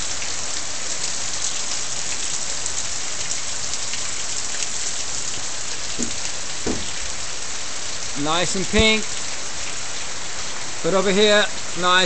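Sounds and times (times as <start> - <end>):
heavy rain hissing: 0.0 - 12.0
raindrop ticks: 5.8 - 7.1.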